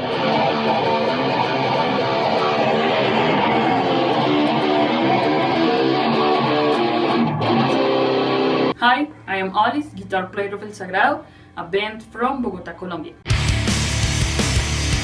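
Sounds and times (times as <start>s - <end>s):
strummed guitar music: 0.0s - 8.8s, 13.3s - 15.0s.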